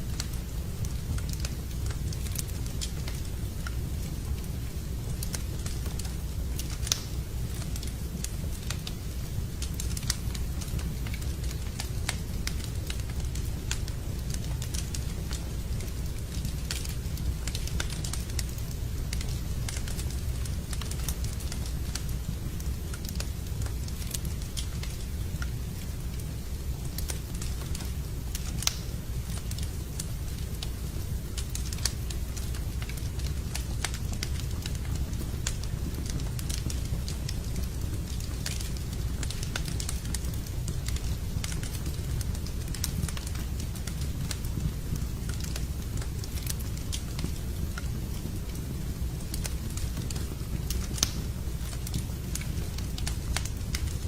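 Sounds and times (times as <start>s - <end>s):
campfire crackling: 0.0s - 54.0s
steady low rush of fire: 0.0s - 54.0s
sharp pops of burning wood: 5.2s - 9.0s, 26.8s - 30.8s, 31.4s - 54.0s.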